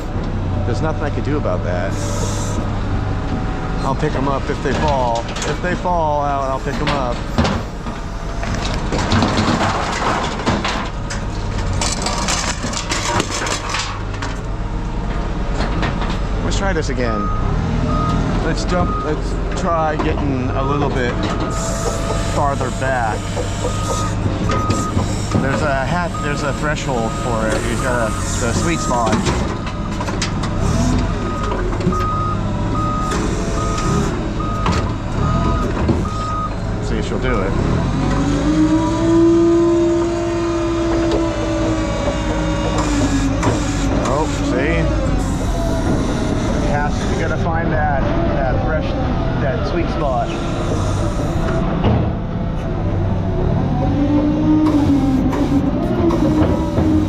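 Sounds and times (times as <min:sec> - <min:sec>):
forklift engine running: 0:00.0 - 0:57.0
forklift reversing alarm beeping: 0:05.9 - 0:08.8, 0:17.0 - 0:19.4, 0:20.4 - 0:36.8, 0:41.2 - 0:47.4, 0:49.2 - 0:51.8
scrap metal clattering: 0:06.7 - 0:14.4.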